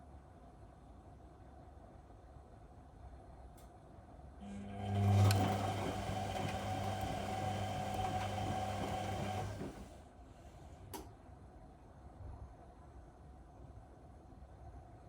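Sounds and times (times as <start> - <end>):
click: 3.5 - 3.8, 5.2 - 5.5, 10.9 - 11.1
washing machine humming: 4.4 - 10.0.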